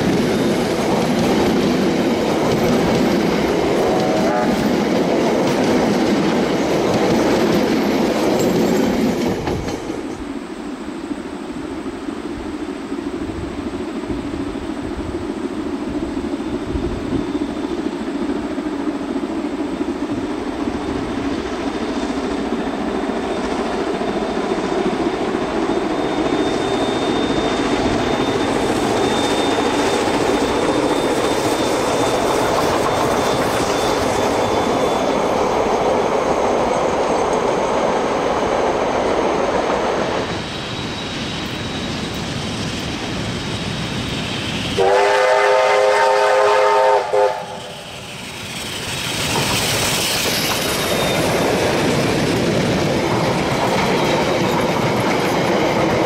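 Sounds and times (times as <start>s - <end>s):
carriages clattering over rail joints: 4.8s - 10.1s, 48.4s - 56.0s
faint high wheel squeal: 16.5s - 18.1s, 22.9s - 37.6s, 39.2s - 45.1s, 47.2s - 52.3s.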